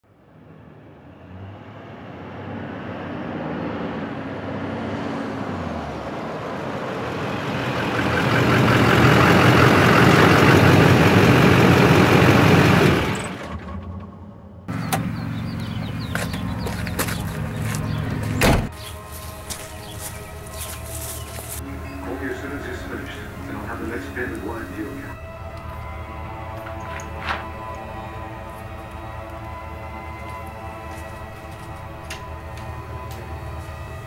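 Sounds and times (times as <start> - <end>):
vehicle engine running: 5.9 - 34.0.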